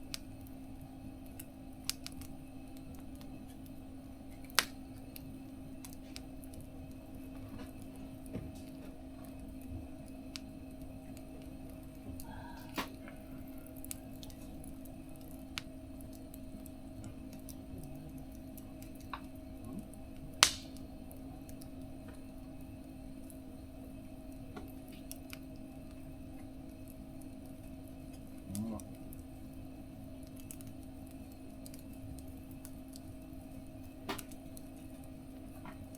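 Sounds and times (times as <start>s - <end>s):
steady low hum: 0.0s - 35.9s
wood fire crackling: 0.0s - 35.9s
loud wood snap: 20.4s - 20.8s, 34.1s - 34.4s.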